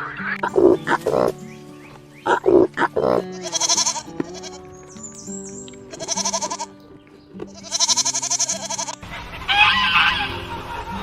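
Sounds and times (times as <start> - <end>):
background music: 0.0 - 11.0
goat bleating: 2.5 - 4.8, 5.8 - 6.8, 7.4 - 11.0
harsh animal call: 7.6 - 10.4.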